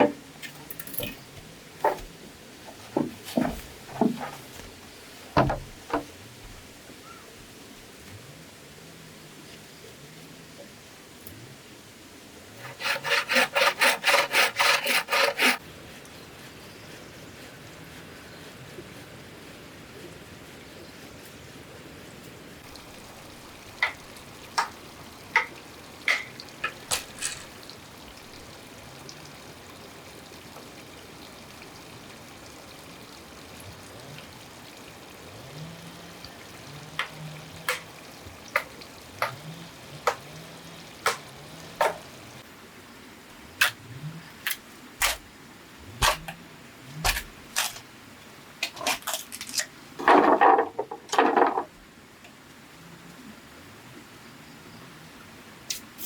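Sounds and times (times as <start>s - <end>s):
rustling scrape: 12.6s - 15.6s, 26.9s - 27.6s.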